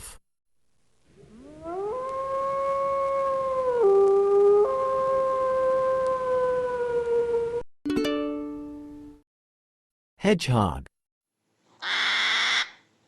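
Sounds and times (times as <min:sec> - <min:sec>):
wolf howling: 0:01.2 - 0:07.6.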